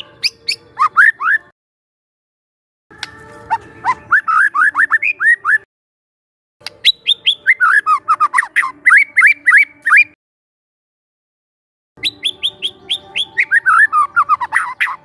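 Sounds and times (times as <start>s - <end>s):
bird singing upward-sliding notes: 0.0s - 1.5s, 3.0s - 5.7s, 6.6s - 10.2s, 12.0s - 15.0s.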